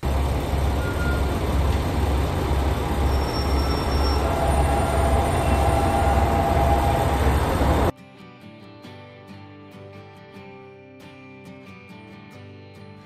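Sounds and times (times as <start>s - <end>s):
road noise: 0.0s - 7.9s
vehicle low rumble: 0.0s - 7.9s
thin squealing tones: 0.6s - 1.7s, 2.3s - 7.9s.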